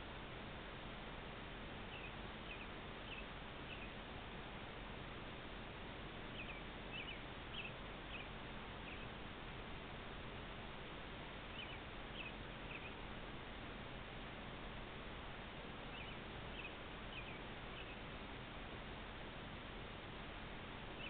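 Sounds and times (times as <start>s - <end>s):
microphone hiss: 0.0s - 21.0s
bird chirping: 1.8s - 4.0s, 6.3s - 9.2s, 11.5s - 13.0s, 15.8s - 18.0s.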